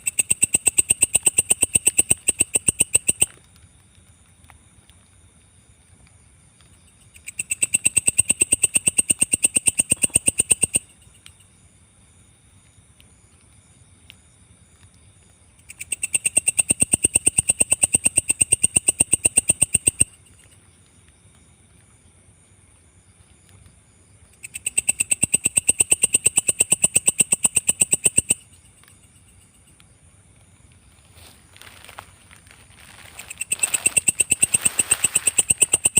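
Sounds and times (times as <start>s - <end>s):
katydid chirping: 0.0s - 3.4s, 6.7s - 11.6s, 15.6s - 20.7s, 24.3s - 29.8s, 31.1s - 35.9s
high-pitched insect hum: 0.0s - 35.9s.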